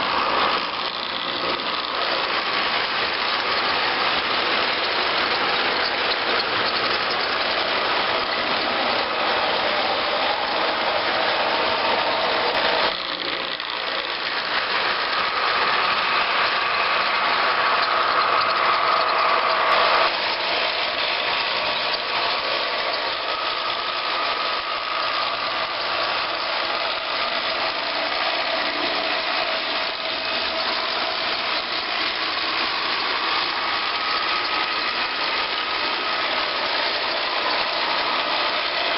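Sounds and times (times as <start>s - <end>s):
locomotive engine running: 0.0s - 38.9s.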